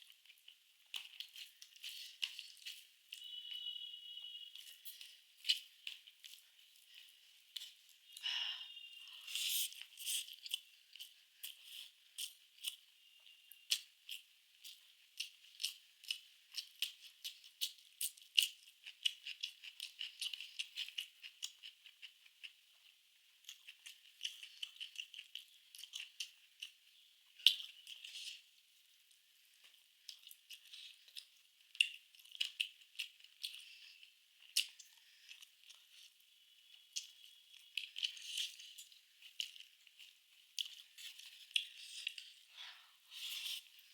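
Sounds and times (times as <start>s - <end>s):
chewing and mouth smacks: 0.0s - 3.3s, 9.4s - 12.8s, 13.7s - 28.4s, 29.1s - 42.4s
small clicks and crackles: 13.6s - 36.2s, 36.9s - 42.4s.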